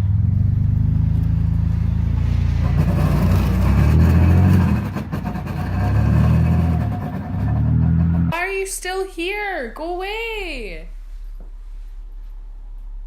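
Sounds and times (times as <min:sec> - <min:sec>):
vehicle engine running: 0:00.0 - 0:08.4.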